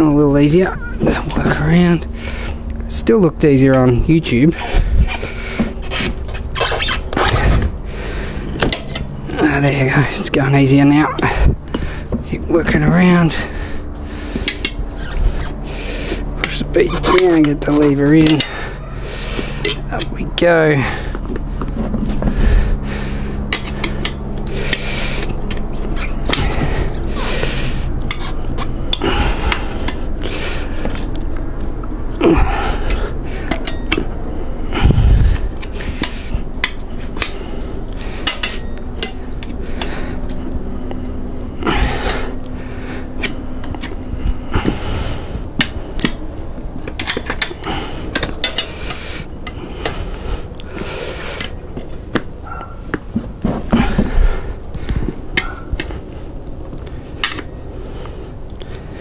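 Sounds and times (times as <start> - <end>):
tyre levers clinking on rim: 57.2 - 57.5.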